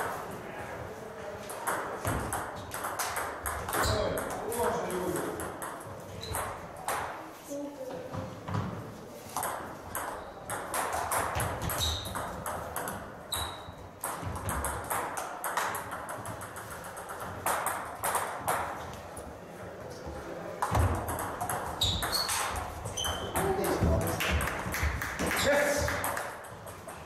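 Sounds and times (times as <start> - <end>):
table tennis balls clicking: 1.5 - 7.2, 9.3 - 19.1, 20.6 - 27.0
short high squeaks: 11.8 - 12.2, 13.3 - 13.7, 21.8 - 23.4.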